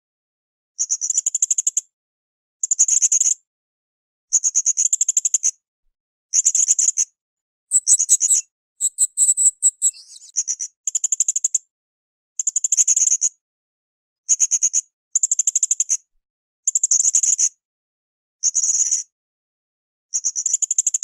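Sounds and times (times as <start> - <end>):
parrot chirping: 7.7 - 10.3.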